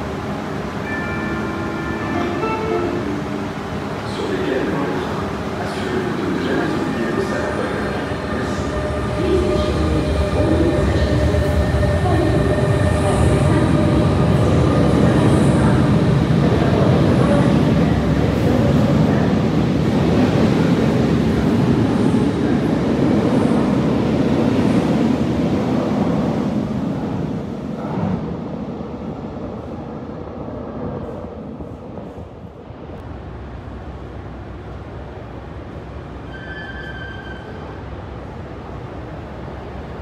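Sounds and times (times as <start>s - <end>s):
brief high tone: 0.8s - 3.4s.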